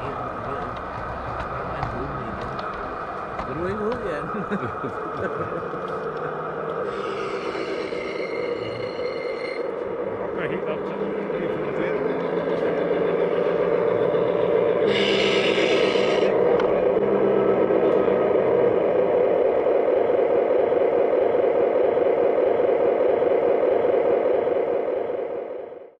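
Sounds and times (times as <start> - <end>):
model train wheels clattering on rail: 0.2 - 4.2
high hiss or squeal: 6.8 - 9.7, 14.8 - 16.4.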